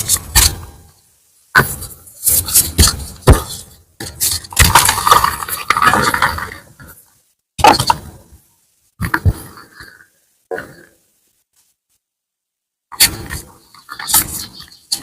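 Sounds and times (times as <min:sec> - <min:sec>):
chalk block being crushed: 0:04.2 - 0:06.6.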